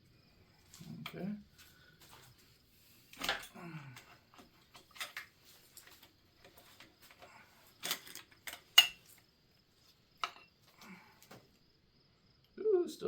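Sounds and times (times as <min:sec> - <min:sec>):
metal parts clinking: 0:03.1 - 0:09.2.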